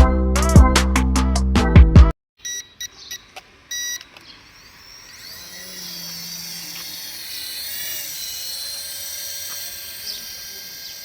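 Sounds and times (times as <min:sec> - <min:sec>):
short electronic beeps: 0:02.4 - 0:04.1
small electric motors whining: 0:03.6 - 0:11.0.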